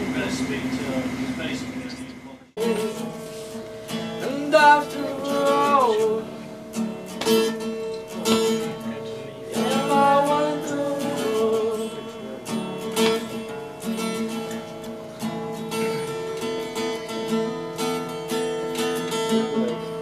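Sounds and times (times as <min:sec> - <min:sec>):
strummed acoustic guitar: 0:00.0 - 0:20.0
person singing: 0:04.2 - 0:06.3, 0:09.5 - 0:12.2.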